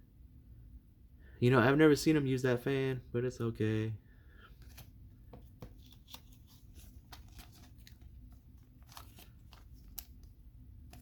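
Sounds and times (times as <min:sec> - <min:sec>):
trading cards rustling and clicking: 0:04.5 - 0:11.0.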